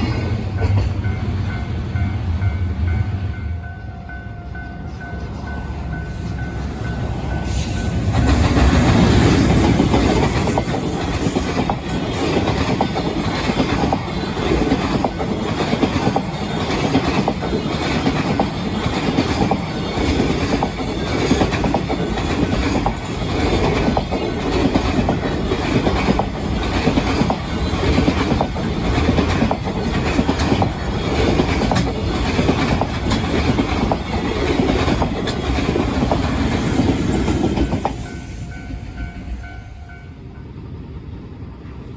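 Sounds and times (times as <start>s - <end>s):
freight train passing: 0.0s - 41.9s
wheels clacking over rail joints: 8.1s - 38.1s.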